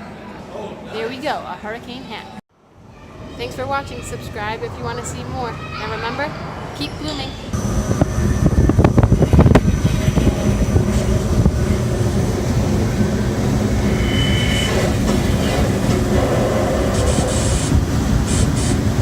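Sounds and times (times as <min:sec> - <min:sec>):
brief high tone: 0:06.8 - 0:07.6
rushing wind from blowers: 0:07.6 - 0:19.0.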